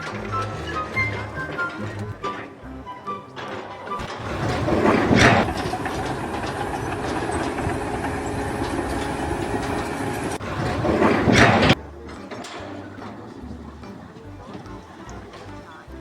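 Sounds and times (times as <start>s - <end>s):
mechanical rumble and rush: 4.0s - 11.8s.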